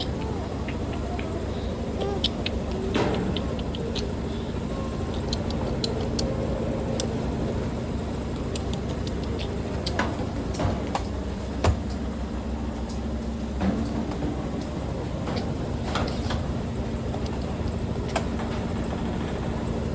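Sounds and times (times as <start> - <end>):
washing machine drum spinning: 0.0 - 19.9.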